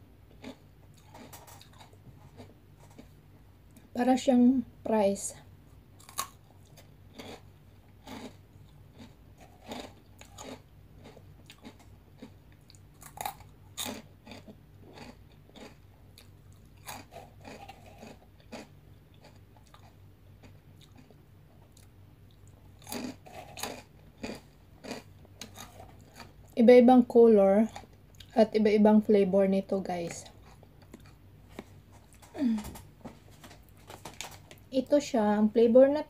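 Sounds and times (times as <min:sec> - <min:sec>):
crunching crisp snack sticks: 0:00.3 - 0:03.2, 0:06.0 - 0:26.6.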